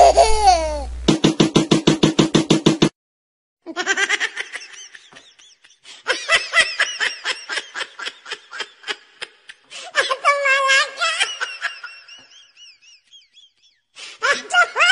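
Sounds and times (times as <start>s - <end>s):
high-pitched laughter: 0.0s - 0.9s, 3.7s - 13.6s, 14.2s - 14.9s.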